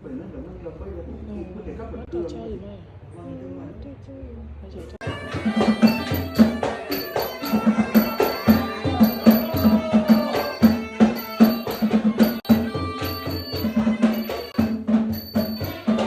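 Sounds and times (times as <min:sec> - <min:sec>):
low pitched drum beat: 0:05.0 - 0:16.0
small ringing cymbals: 0:05.0 - 0:16.0
traditional percussion ensemble: 0:05.0 - 0:16.0.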